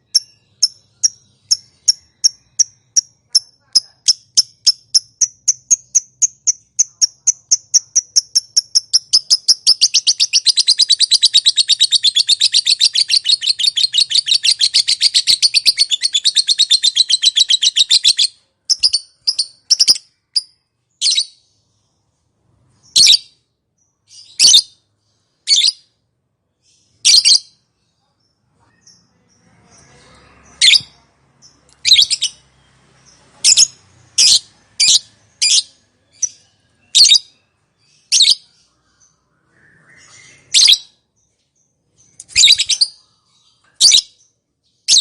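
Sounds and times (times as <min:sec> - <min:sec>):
lovebird chatter: 0:00.0 - 0:21.2, 0:28.8 - 0:39.0, 0:42.0 - 0:44.1.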